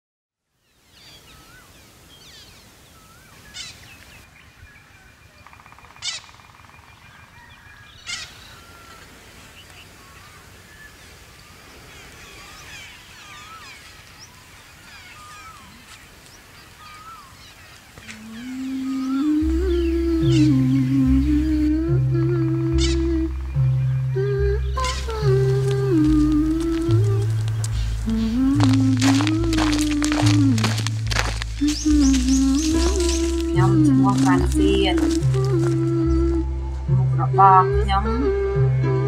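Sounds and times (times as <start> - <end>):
wild birds chirping and whistling: 0.6 - 21.5, 22.7 - 36.6
sharp bird calls: 0.8 - 21.4, 22.7 - 36.2
faint low rumble: 18.4 - 39.0.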